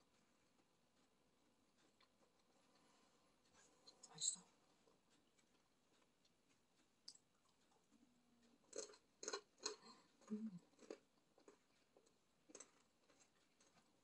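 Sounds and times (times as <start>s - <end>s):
person chewing fried food: 1.7s - 3.6s, 5.0s - 7.9s, 8.5s - 14.0s.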